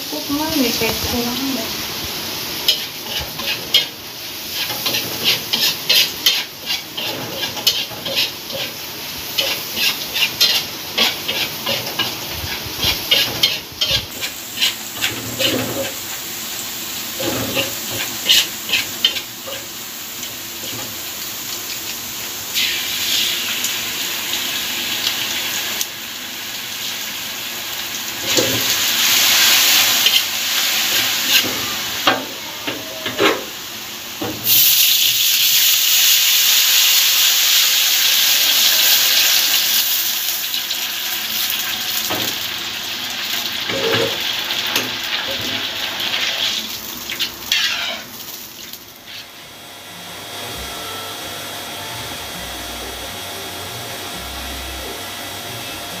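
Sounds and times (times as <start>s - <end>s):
spice paste sizzling in oil: 0.0s - 32.3s, 33.4s - 49.3s
metal spatula scraping a wok: 2.7s - 16.0s, 17.2s - 19.7s, 30.8s - 31.7s, 47.1s - 48.1s, 49.0s - 49.3s.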